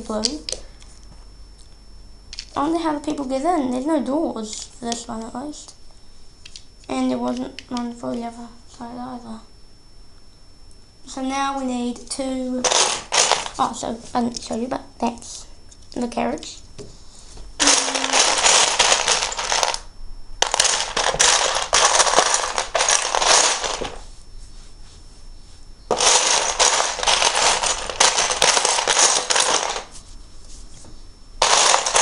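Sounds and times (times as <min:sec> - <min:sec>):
plastic bricks clattering: 0:12.6 - 0:13.6, 0:17.6 - 0:19.8, 0:20.4 - 0:24.0, 0:25.9 - 0:29.9, 0:31.4 - 0:32.0.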